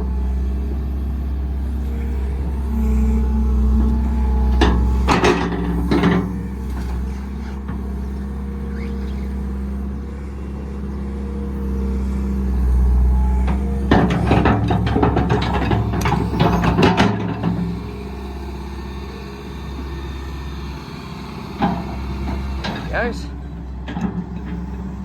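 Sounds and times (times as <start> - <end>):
digger diesel engine running: 0.0 - 25.0
metal clanks: 3.8 - 7.8.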